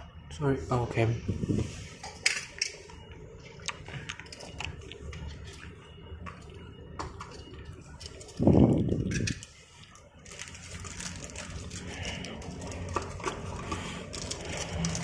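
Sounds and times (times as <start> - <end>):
toy cars and packaging clicking: 7.2 - 15.0.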